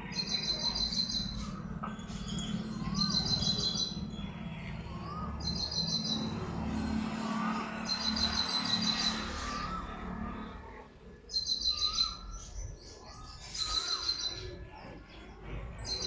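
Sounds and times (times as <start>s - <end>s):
steady low hum: 0.0s - 11.4s
bird singing trilled phrase: 0.1s - 6.4s.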